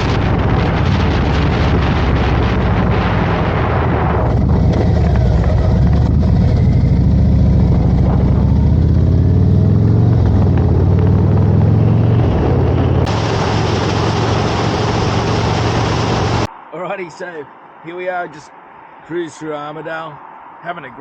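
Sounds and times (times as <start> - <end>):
wind rush on microphone: 0.0 - 16.5
motorcycle engine running: 4.1 - 16.5.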